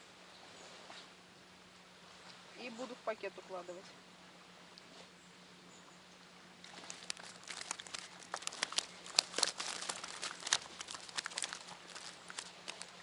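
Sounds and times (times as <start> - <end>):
plastic bag crinkling: 6.7 - 13.0.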